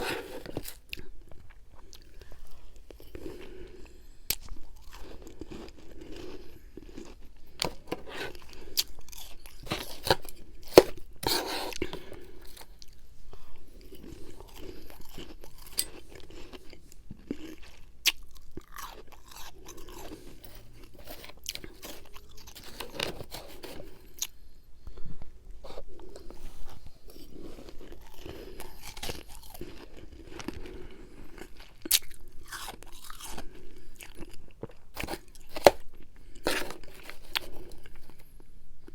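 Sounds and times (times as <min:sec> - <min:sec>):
person chewing ice: 0:00.0 - 0:24.4, 0:25.6 - 0:38.4
ice crunching between teeth: 0:04.3 - 0:13.0, 0:13.9 - 0:24.3, 0:26.2 - 0:38.0.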